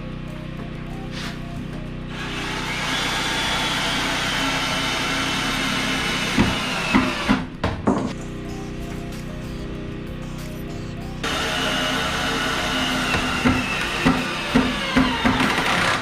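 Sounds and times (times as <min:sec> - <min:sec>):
power tool whining: 0:02.1 - 0:07.5, 0:11.2 - 0:16.0.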